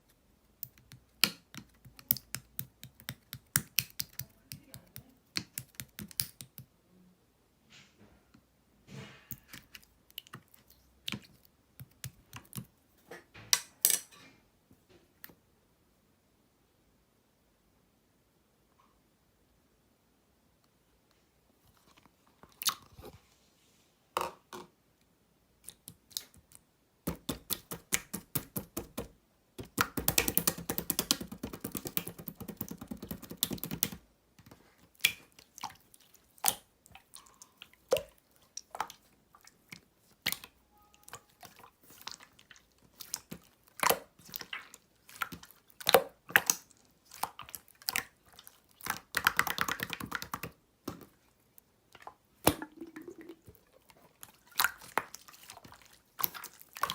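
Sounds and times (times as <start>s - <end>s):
rapid slime crackling: 0.6s - 6.6s, 27.1s - 50.6s, 52.1s - 56.9s.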